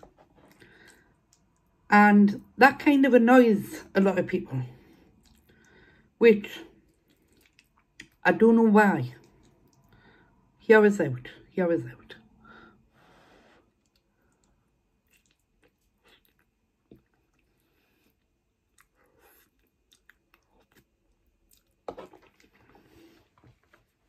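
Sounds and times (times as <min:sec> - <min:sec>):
wet chewing: 0:04.8 - 0:05.9, 0:06.7 - 0:08.2, 0:09.2 - 0:10.2, 0:13.7 - 0:24.0.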